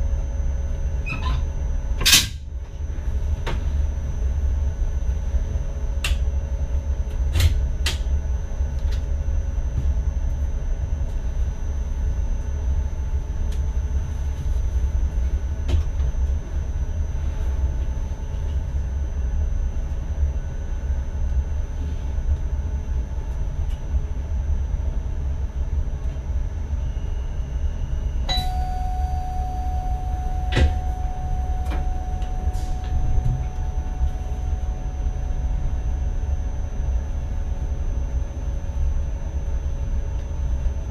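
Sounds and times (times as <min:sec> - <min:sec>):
electric train rumble: 0:00.0 - 0:40.9
steady tone: 0:28.3 - 0:38.4.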